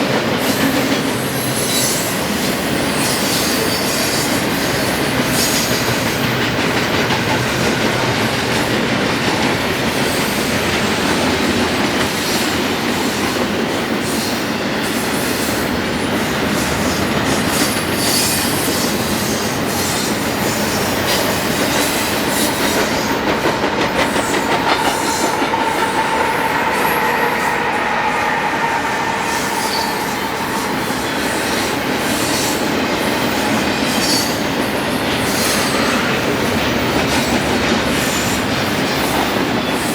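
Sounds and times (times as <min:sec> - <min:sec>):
train wheels clacking over rail joints: 0:00.0 - 0:28.4, 0:29.9 - 0:39.9
high-pitched wheel squeal: 0:24.2 - 0:32.4.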